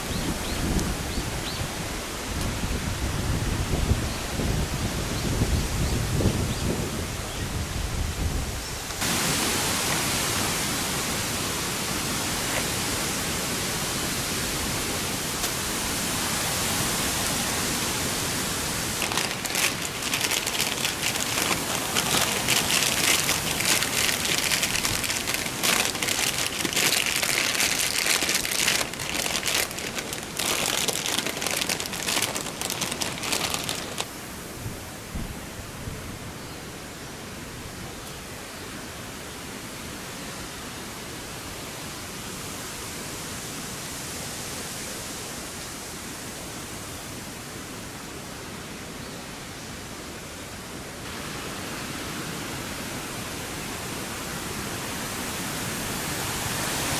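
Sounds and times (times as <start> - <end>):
wind and rain rushing hiss: 0.0 - 56.9
raindrops crackling close by: 18.5 - 34.2.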